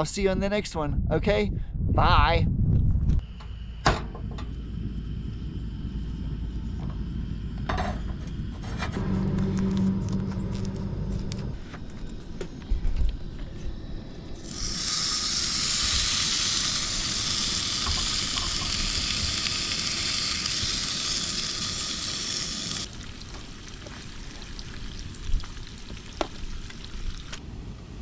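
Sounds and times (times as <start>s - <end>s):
bacon sizzling in a pan: 14.4s - 27.3s.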